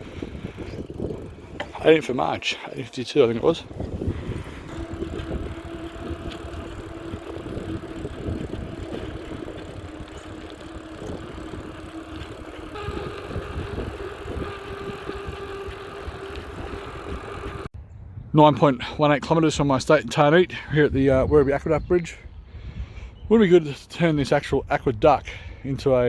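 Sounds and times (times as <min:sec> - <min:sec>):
wind on microphone: 0:00.0 - 0:01.9, 0:03.4 - 0:18.4
bicycle frame rattling: 0:00.0 - 0:17.7
bicycle tyre rumble: 0:00.0 - 0:17.7
steady hum: 0:00.0 - 0:17.7.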